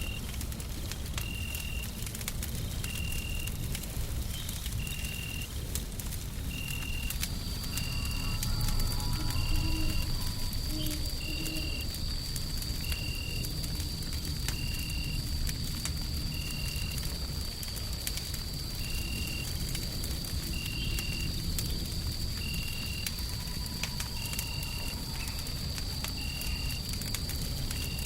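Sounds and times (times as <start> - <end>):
wood fire crackling: 0.0 - 28.0
steady low rumble: 5.4 - 16.3
thin high whine: 7.6 - 11.9.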